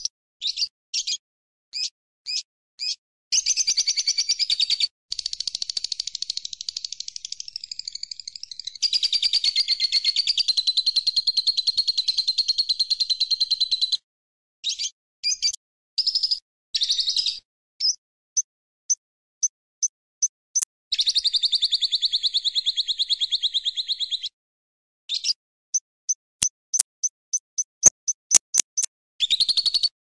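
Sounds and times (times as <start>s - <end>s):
bird chirps: 15.3s - 15.6s, 28.1s - 28.9s.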